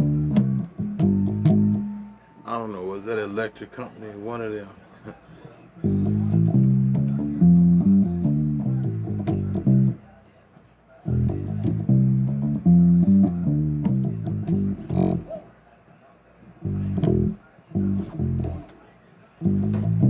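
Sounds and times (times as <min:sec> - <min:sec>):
bass guitar riff: 0:00.0 - 0:02.2, 0:05.8 - 0:10.0, 0:11.1 - 0:15.4, 0:16.6 - 0:18.7, 0:19.4 - 0:20.0.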